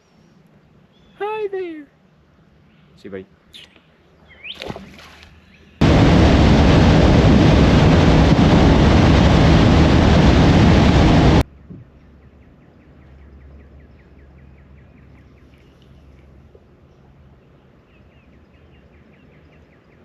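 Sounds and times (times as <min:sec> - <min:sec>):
boat running fast: 0:05.8 - 0:11.4
wind buffeting microphone: 0:05.8 - 0:11.4.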